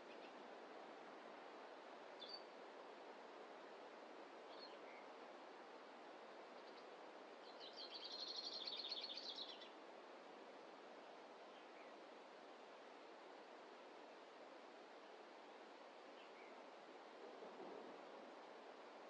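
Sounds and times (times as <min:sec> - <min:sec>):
soft steady hiss: 0:00.0 - 0:19.0.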